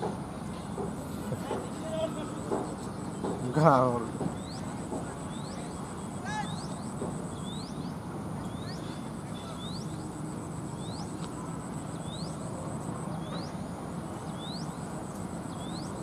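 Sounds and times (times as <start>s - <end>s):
outdoor background noise: 0.0s - 16.0s
bird chirping: 4.2s - 10.1s, 10.7s - 16.0s.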